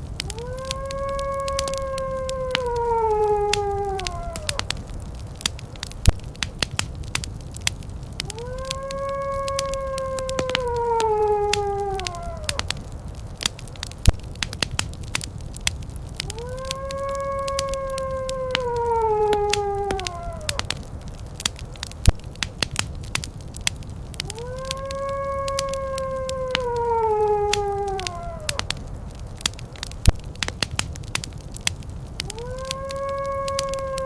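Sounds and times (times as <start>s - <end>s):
wood fire crackling: 0.0s - 34.0s
wolf howling: 0.2s - 5.9s, 8.1s - 13.9s, 16.0s - 21.9s, 24.1s - 29.9s, 31.5s - 34.0s.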